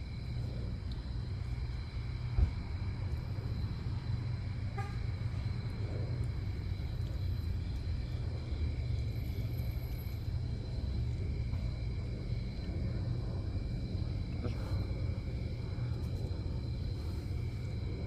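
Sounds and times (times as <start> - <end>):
thump: 2.4 - 2.6.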